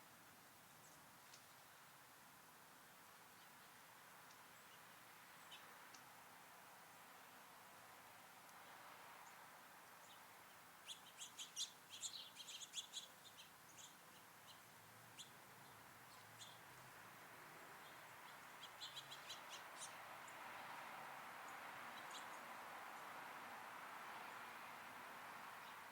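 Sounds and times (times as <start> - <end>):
faint background hiss: 0.0 - 25.9
songbirds high chirps: 3.2 - 6.1, 8.5 - 23.2, 25.2 - 25.9.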